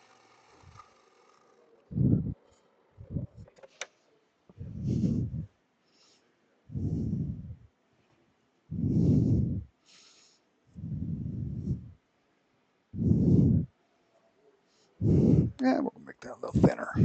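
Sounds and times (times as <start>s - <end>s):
person breathing into microphone: 1.9s - 2.4s, 4.6s - 7.6s, 8.7s - 12.0s, 12.9s - 13.7s, 14.8s - 15.6s.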